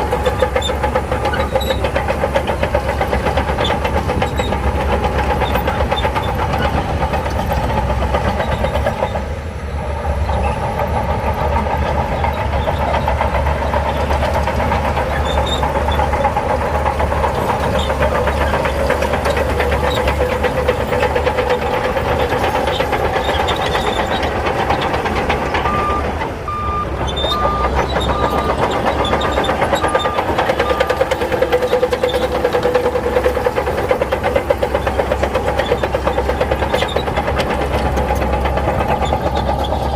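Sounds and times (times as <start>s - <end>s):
diesel engine running: 0.0s - 39.9s
reversing alarm beeping: 25.6s - 31.1s.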